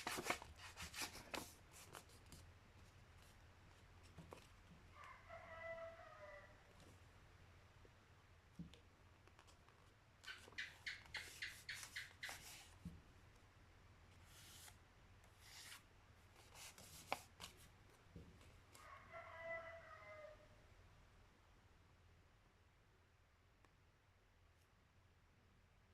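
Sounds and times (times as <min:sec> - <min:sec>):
rooster crowing: 0:05.0 - 0:06.6, 0:18.8 - 0:20.6.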